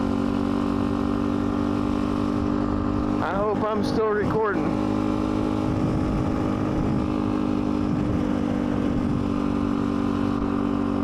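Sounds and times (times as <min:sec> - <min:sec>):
small motorbike engine running: 0:00.0 - 0:11.0.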